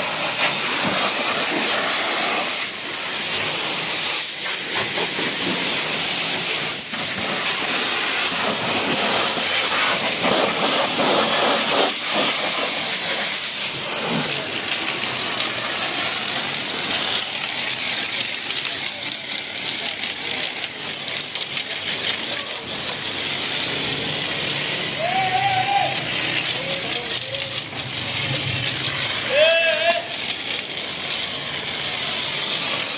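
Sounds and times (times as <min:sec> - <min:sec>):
pressure washer spraying water: 0:00.0 - 0:32.9
spattering ticks: 0:17.2 - 0:25.0.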